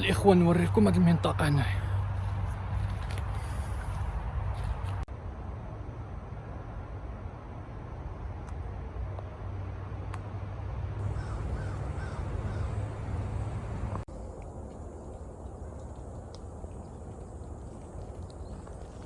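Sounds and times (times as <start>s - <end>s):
bird calling: 11.0s - 13.2s
wind rumble on microphone: 11.1s - 19.0s.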